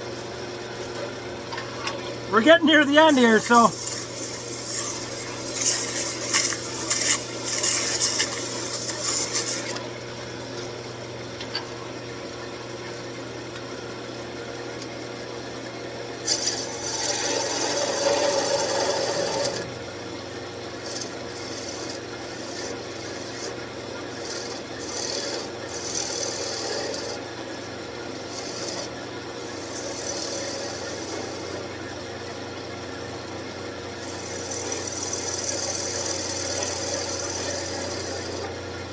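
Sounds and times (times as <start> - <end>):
tool cutting spinning wood: 2.4 - 9.8, 16.3 - 19.6, 20.8 - 27.2, 28.2 - 31.7, 34.0 - 38.6
wood lathe motor hum: 3.7 - 9.8, 16.3 - 19.7, 20.8 - 27.4, 28.1 - 31.8, 34.0 - 38.9.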